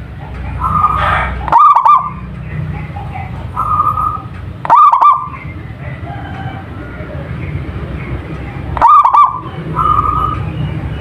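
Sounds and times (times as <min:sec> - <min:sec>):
dove cooing: 0:00.6 - 0:07.2, 0:08.8 - 0:10.6.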